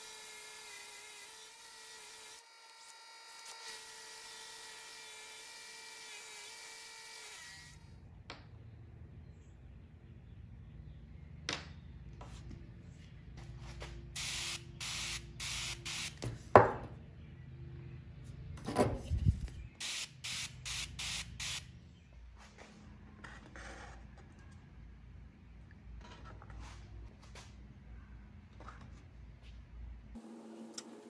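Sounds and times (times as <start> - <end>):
spray paint can bursts: 14.2 - 16.2, 19.8 - 21.7.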